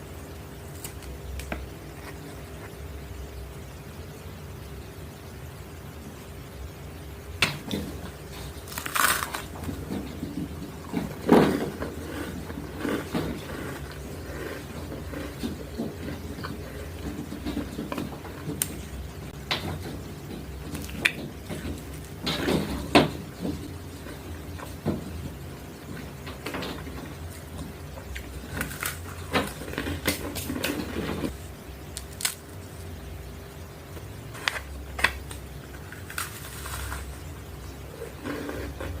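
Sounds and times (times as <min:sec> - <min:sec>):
low steady hum: 0:00.0 - 0:39.0
biscuits crunching: 0:08.0 - 0:18.6, 0:28.0 - 0:31.0, 0:31.9 - 0:32.7, 0:34.3 - 0:37.4
person crunching biscuits: 0:08.3 - 0:09.7, 0:31.9 - 0:32.6, 0:34.3 - 0:37.3.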